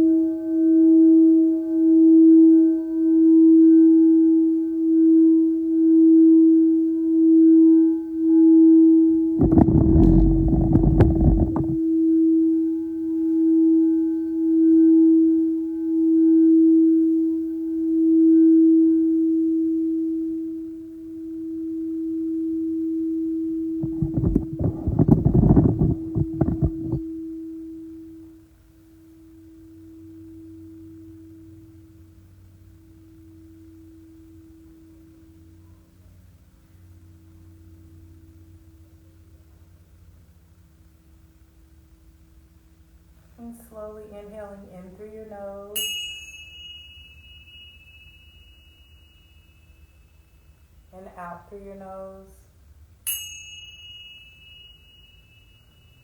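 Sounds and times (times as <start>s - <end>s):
crystal singing bowl ringing: 44.9s - 51.0s, 53.1s - 56.0s.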